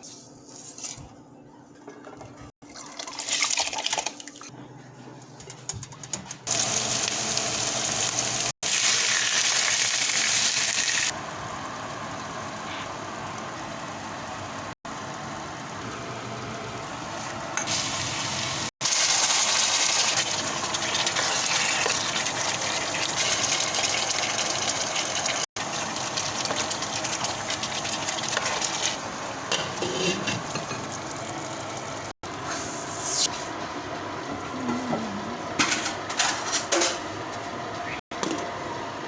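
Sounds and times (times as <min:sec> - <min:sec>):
food cooking in a pot hissing: 0:06.5 - 0:13.0, 0:13.6 - 0:29.0.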